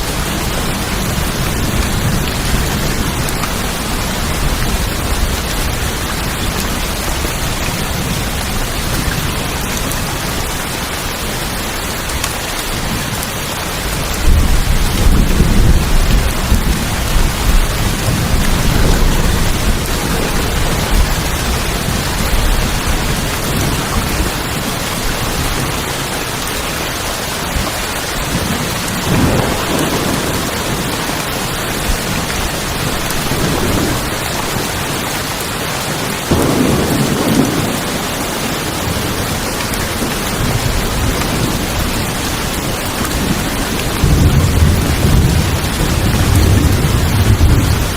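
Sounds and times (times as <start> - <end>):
rain on tin roofs: 0.0 - 47.9
thunder rumbling: 13.8 - 26.5, 27.5 - 35.0, 36.0 - 47.9.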